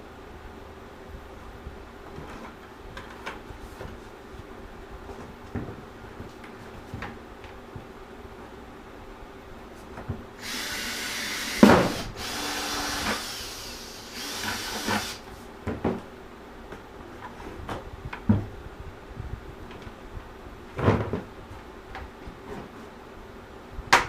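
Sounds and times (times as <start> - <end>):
power drill cutting plastic: 10.4 - 15.2.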